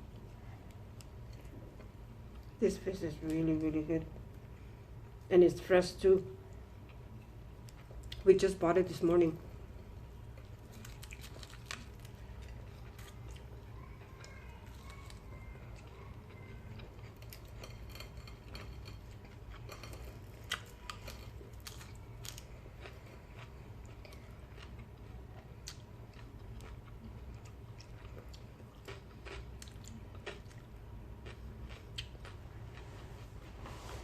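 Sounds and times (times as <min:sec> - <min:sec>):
chewing with wet clicks: 0:06.5 - 0:08.2, 0:10.2 - 0:32.8.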